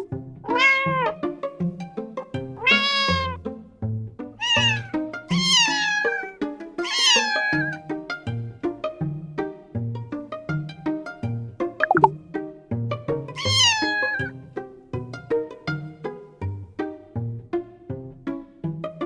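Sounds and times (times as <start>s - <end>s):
cat meowing: 0.0s - 1.2s, 2.6s - 3.4s, 4.4s - 7.8s, 13.4s - 14.3s.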